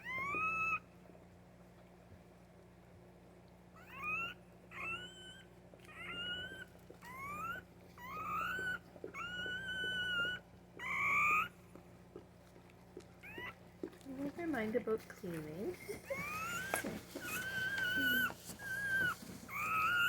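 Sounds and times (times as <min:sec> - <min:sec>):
puppy crying high squeals: 0:00.0 - 0:00.9, 0:03.8 - 0:11.6, 0:13.2 - 0:13.6, 0:15.8 - 0:20.0.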